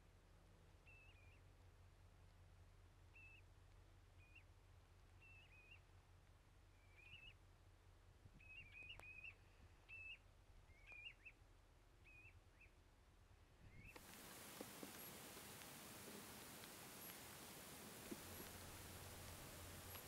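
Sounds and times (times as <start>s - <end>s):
low steady rumble: 0.0s - 20.0s
high-pitched bird calls: 0.8s - 1.5s, 3.1s - 3.4s, 5.2s - 5.8s, 6.7s - 7.4s, 8.4s - 11.4s.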